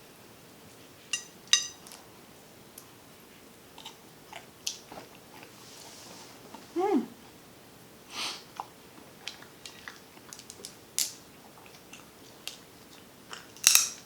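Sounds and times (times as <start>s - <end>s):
quiet chewing: 2.8s - 6.7s, 8.5s - 10.8s, 11.4s - 13.6s.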